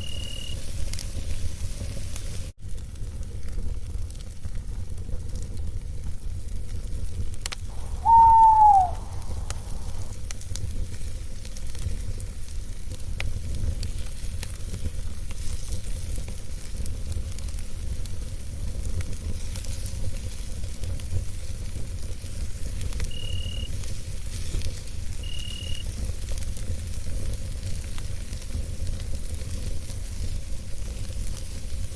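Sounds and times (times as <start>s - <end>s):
campfire crackling and popping: 0.0s - 31.9s
steady low rumble: 7.7s - 8.1s, 8.9s - 10.2s
owl hoot: 7.7s - 10.1s.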